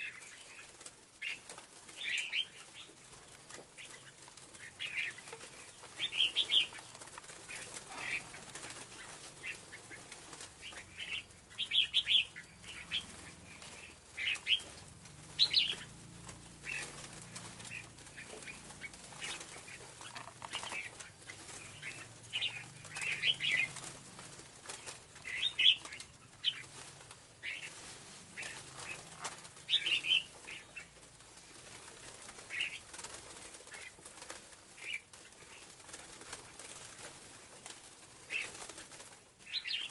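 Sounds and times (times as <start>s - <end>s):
bird chirping: 0.0s - 31.2s, 39.4s - 39.9s.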